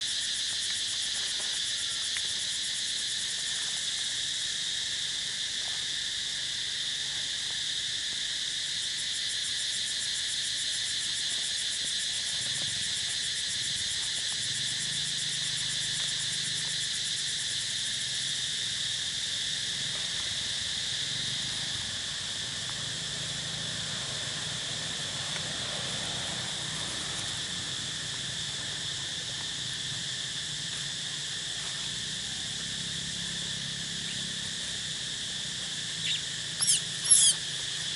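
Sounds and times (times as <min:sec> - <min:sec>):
insect chorus buzzing: 0:00.0 - 0:37.9.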